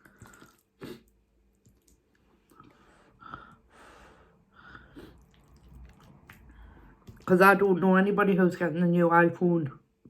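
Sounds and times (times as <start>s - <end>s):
person breathing: 2.5s - 5.4s, 6.4s - 7.1s.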